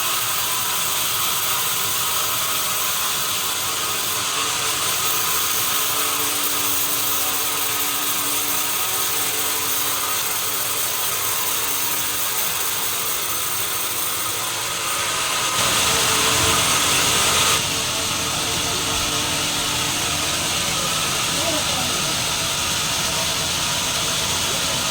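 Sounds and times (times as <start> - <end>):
sawmill machinery running: 0.0 - 24.9.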